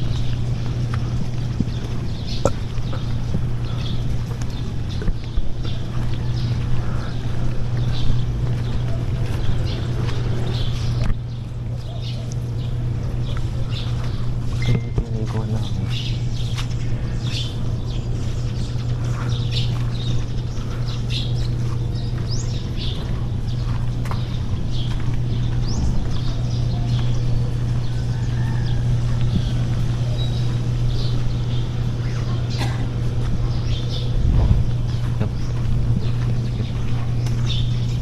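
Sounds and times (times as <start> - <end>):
birds chirping: 0.0 - 38.0
steady low hum: 0.0 - 38.0.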